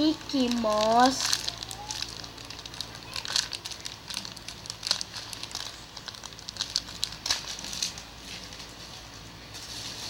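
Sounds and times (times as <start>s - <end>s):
squishy toy crinkling: 0.0s - 8.7s.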